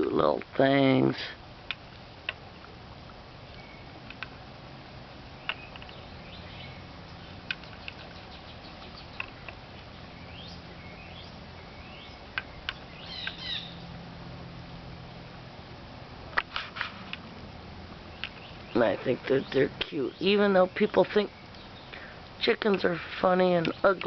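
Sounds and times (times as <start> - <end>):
chickens chirping: 5.3 - 13.9
beaks clicking on water dish: 7.4 - 9.6.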